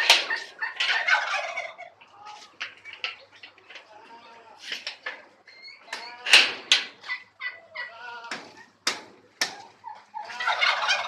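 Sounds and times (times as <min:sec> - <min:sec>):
peafowl harsh calls: 0:00.0 - 0:03.0, 0:09.6 - 0:11.0.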